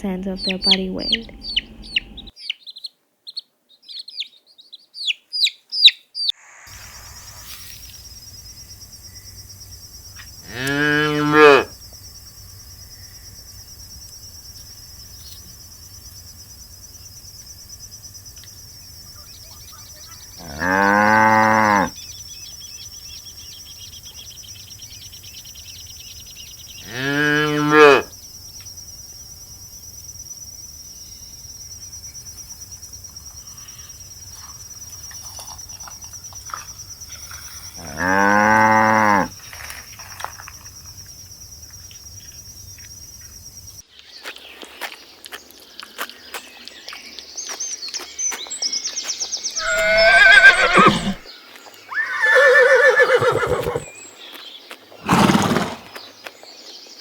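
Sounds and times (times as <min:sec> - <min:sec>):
cow mooing: 0:10.4 - 0:11.7, 0:20.4 - 0:22.0, 0:26.8 - 0:28.1, 0:37.8 - 0:39.3, 0:49.6 - 0:51.3
horses whinnying: 0:49.6 - 0:51.3, 0:51.9 - 0:53.9, 0:55.0 - 0:56.0.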